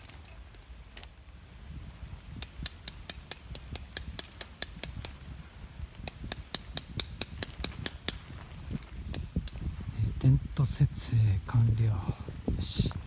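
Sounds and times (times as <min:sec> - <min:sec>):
hammer striking tent peg: 0:02.4 - 0:05.2, 0:06.1 - 0:08.3.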